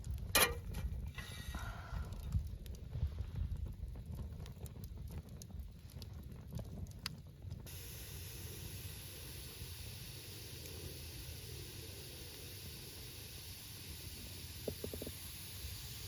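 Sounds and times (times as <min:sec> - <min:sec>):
steady hiss: 0:07.6 - 0:16.0.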